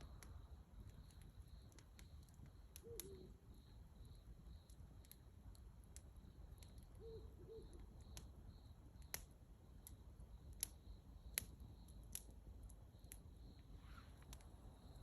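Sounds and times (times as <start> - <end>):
campfire crackling: 0.0 - 15.0
bird calling: 2.8 - 3.3, 7.0 - 7.8.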